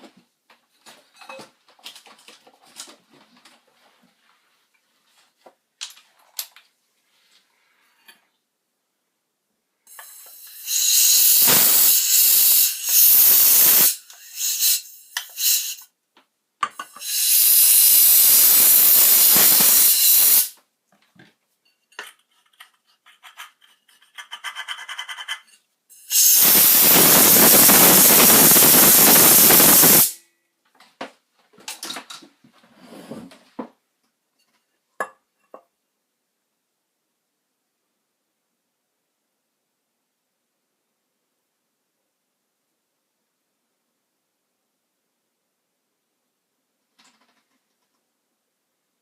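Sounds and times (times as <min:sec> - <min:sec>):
loud hissing spray: 0:10.0 - 0:15.8, 0:17.0 - 0:20.6, 0:26.0 - 0:30.2
small clicks and rattles: 0:46.9 - 0:48.1.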